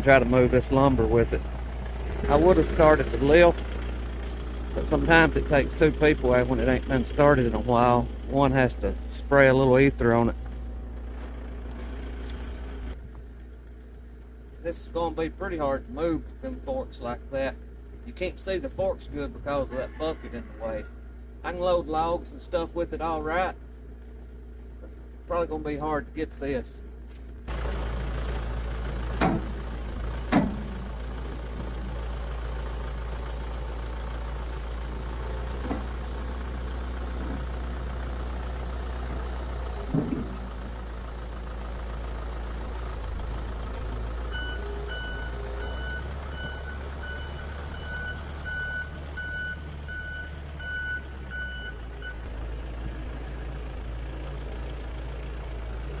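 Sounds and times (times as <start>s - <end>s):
backhoe engine running: 0.0s - 18.0s, 26.9s - 56.0s
reversing alarm beeps: 44.3s - 52.2s.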